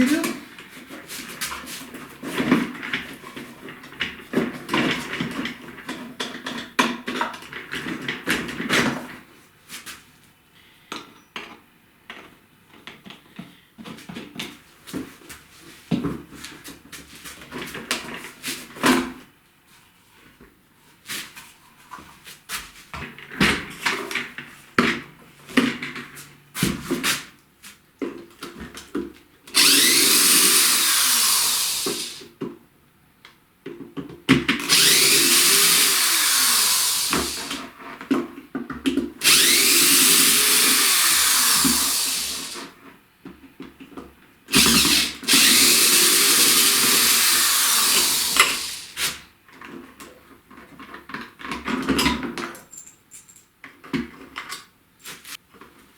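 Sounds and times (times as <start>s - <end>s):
cordless drill running: 29.5s - 32.3s, 34.6s - 37.6s, 39.2s - 42.7s, 44.5s - 49.0s.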